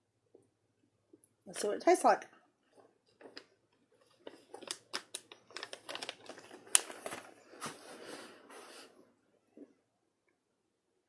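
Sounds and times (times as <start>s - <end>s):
plastic snack bag crinkling: 3.2s - 8.0s.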